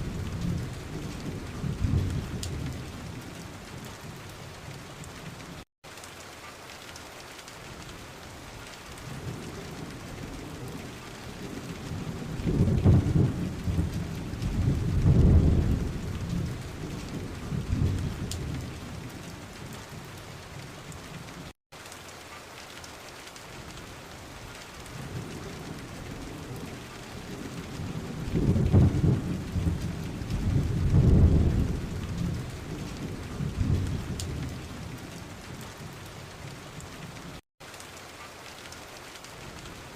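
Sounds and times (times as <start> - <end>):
thunder rumbling: 0.0 - 5.6, 9.0 - 21.3, 24.8 - 37.2
steady rain: 0.0 - 39.9.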